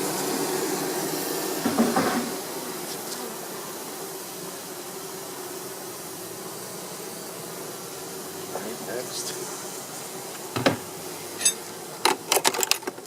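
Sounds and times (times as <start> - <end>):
honeybees buzzing: 0.0 - 13.0
knocks from handling hive: 1.6 - 3.2, 10.3 - 11.1.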